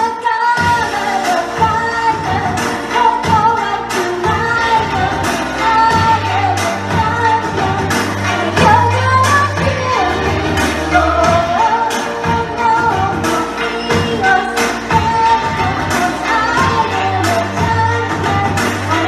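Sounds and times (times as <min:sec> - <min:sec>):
woman singing pop song: 0:00.0 - 0:19.0
drum beat and bass: 0:00.6 - 0:19.0.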